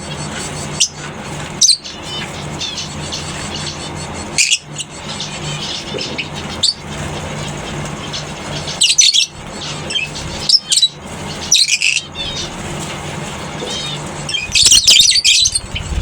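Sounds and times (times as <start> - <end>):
lovebirds screeching: 0.0 - 16.0
low hum: 12.1 - 16.0.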